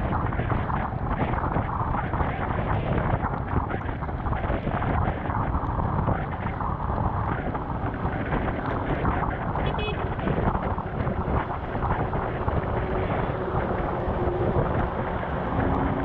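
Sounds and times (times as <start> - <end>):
wet road noise: 0.0 - 16.0
wind rushing over microphone: 0.0 - 16.0
motorcycle engine: 7.1 - 16.0.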